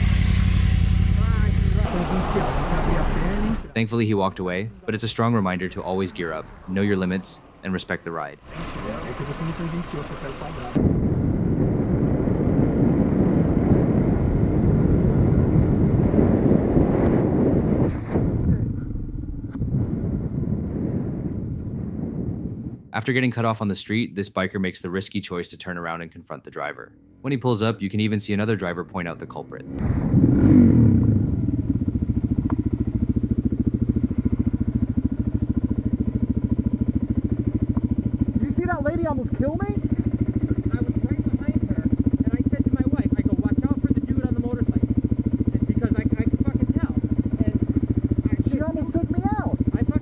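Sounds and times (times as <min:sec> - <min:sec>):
motorcycle road noise: 0:00.0 - 0:22.9, 0:26.9 - 0:27.8, 0:28.4 - 0:50.0
wind buffeting: 0:01.7 - 0:22.9, 0:29.8 - 0:50.0.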